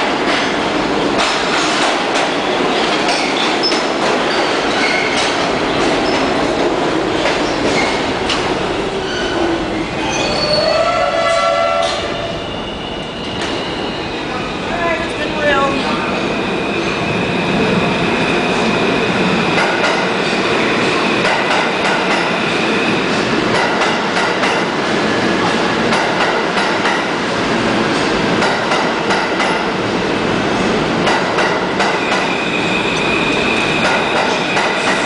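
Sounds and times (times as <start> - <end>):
train wheels rumbling on rail: 0.0 - 35.0
rail joint clicks: 0.1 - 9.4, 11.8 - 12.1, 19.5 - 20.2, 21.2 - 22.4, 23.5 - 24.7, 25.9 - 27.1, 31.0 - 32.3, 32.9 - 35.0
high wheel squeal: 9.0 - 14.3.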